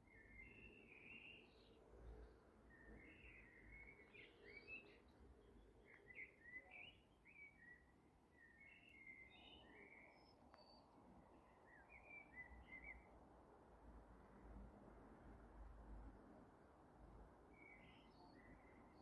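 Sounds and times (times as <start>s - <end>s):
bird chirping: 0.0s - 13.1s, 17.6s - 19.0s
faint click: 10.4s - 10.8s.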